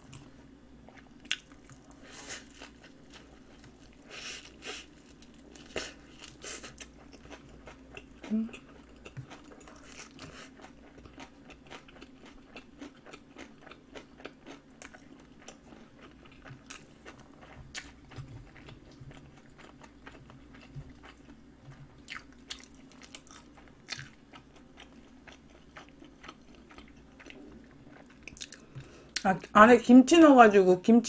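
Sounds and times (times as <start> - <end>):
chewing mouth sounds: 22.0 - 29.3.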